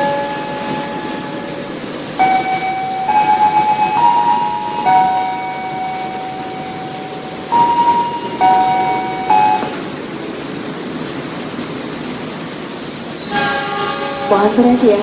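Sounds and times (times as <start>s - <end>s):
held musical notes: 0.0s - 10.6s
train wheels rumbling on rail: 0.0s - 15.0s.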